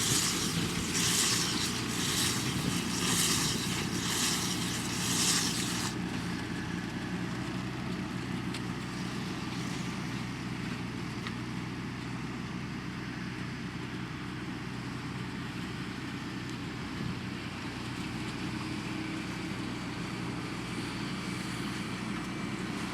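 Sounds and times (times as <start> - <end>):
loud rushing hiss: 0.0 - 6.0
tractor diesel engine running: 0.0 - 16.3.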